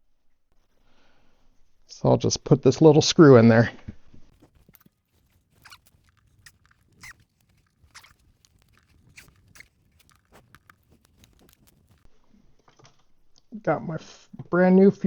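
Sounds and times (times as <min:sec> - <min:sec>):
small screw clicking and rubbing: 0:04.3 - 0:12.1.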